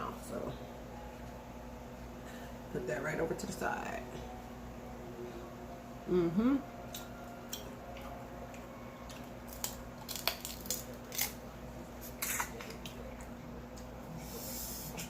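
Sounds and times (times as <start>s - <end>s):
crab shell cracking: 9.5s - 11.4s.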